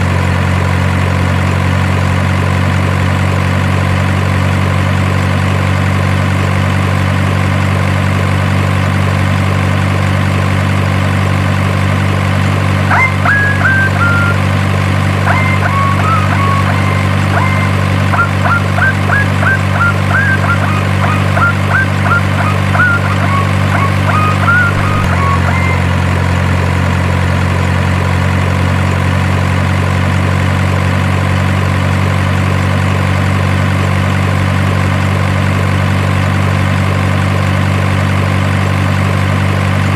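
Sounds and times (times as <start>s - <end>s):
simulated engine idle drone: 0.0s - 39.9s
short high chirps: 12.9s - 26.1s.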